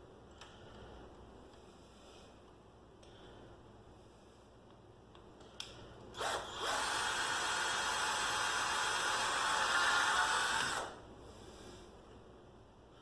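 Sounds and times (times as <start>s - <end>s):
cordless drill driving a screw: 6.2s - 11.0s.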